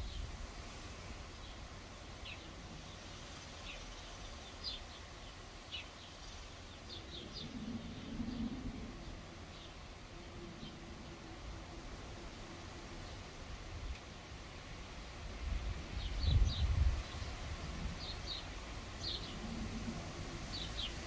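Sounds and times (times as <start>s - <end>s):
low outdoor background hum: 0.0s - 21.0s
distant small birds chirping: 18.0s - 19.6s.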